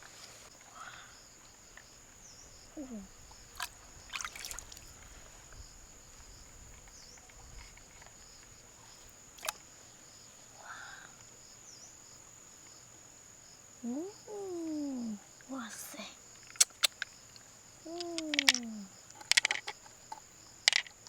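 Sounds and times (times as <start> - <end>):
insect trilling: 0.5 - 12.2, 13.8 - 21.0
sharp clicks: 16.5 - 17.2, 17.9 - 19.7.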